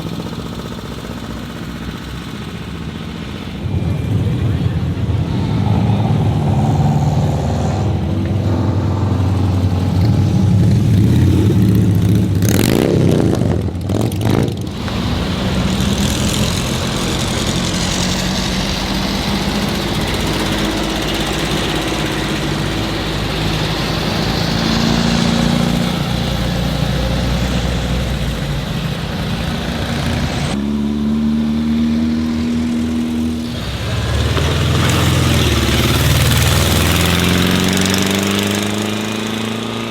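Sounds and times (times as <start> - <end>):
loud rush of noise: 0.0 - 39.9
old car engines humming: 0.0 - 39.9.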